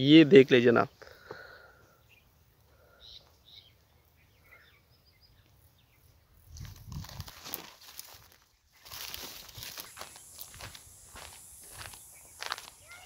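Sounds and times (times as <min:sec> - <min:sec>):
faint bird chirps: 0:01.6 - 0:06.4.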